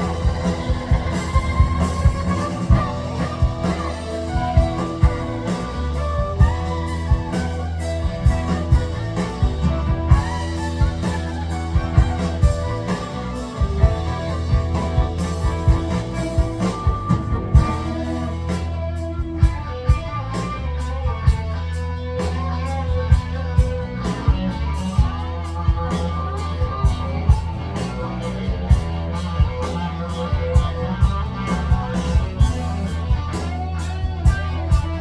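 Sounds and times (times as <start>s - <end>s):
drum kit hits: 0.0s - 20.2s
bass line: 0.0s - 35.0s
guitar: 0.0s - 35.0s
live rock band playing: 0.0s - 35.0s.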